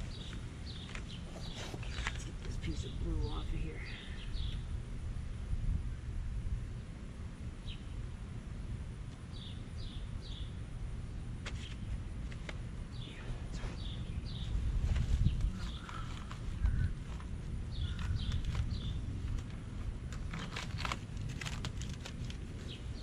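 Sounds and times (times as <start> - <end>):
bird chirping: 0.0 - 4.7, 9.3 - 10.6, 12.9 - 14.6, 15.2 - 19.1.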